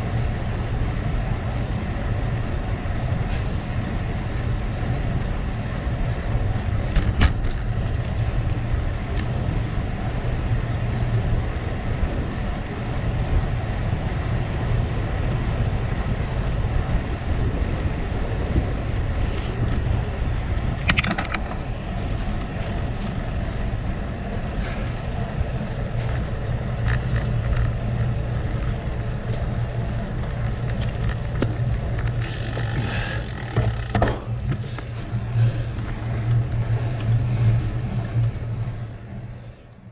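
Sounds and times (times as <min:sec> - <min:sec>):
wind buffeting microphone: 0:00.0 - 0:39.5
bike clicks and rattles: 0:00.0 - 0:39.8
bike tyres crunching on gravel: 0:30.0 - 0:34.0.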